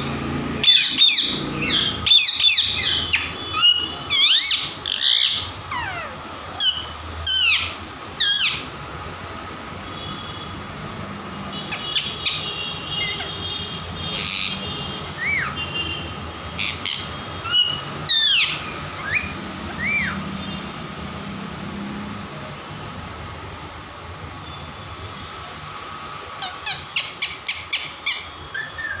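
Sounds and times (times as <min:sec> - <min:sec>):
parrot squawking and chirping: 0:00.6 - 0:08.8, 0:11.6 - 0:15.7, 0:16.5 - 0:20.5, 0:26.3 - 0:29.0.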